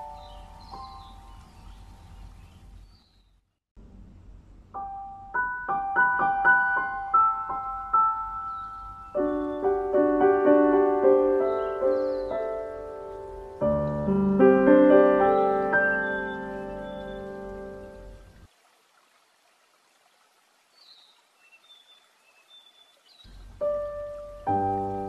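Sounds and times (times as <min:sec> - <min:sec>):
piano music: 0:00.0 - 0:02.2, 0:04.7 - 0:18.4, 0:23.6 - 0:25.0.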